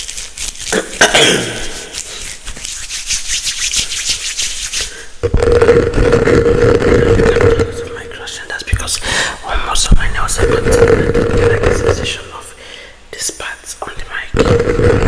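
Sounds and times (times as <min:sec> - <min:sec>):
scratching on microphone: 0:00.0 - 0:07.8, 0:09.7 - 0:12.4, 0:14.3 - 0:15.0.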